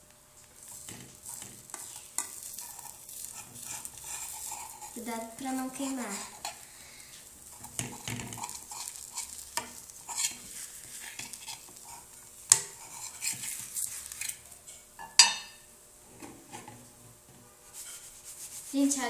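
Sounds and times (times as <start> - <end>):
batter sizzling in oil: 0.0 - 19.0
utensil scraping a frying pan: 0.5 - 19.0
sharp knocks on a pan: 15.0 - 15.6.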